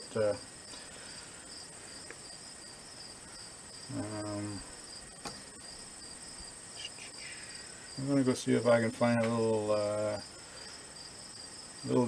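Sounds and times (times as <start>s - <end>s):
crickets chirping: 0.0s - 12.0s
man murmuring: 3.9s - 4.7s.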